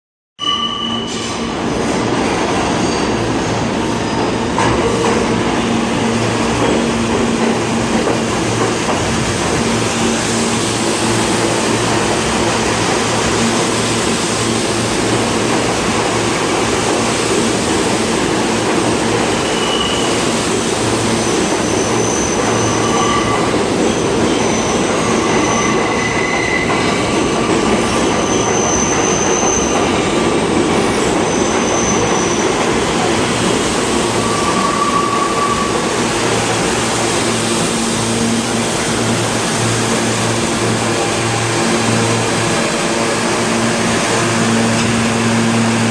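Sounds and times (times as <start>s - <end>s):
train wheels rumbling on rails: 1.0s - 45.9s
high wheel squeals: 19.4s - 20.3s, 21.1s - 27.1s, 34.2s - 35.9s.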